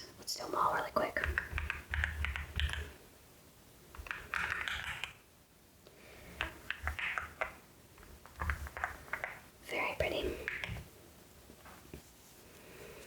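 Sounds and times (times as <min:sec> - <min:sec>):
mechanical keyboard taps: 0:01.2 - 0:02.9, 0:04.0 - 0:05.2, 0:06.4 - 0:07.6, 0:08.2 - 0:09.4, 0:10.4 - 0:10.8.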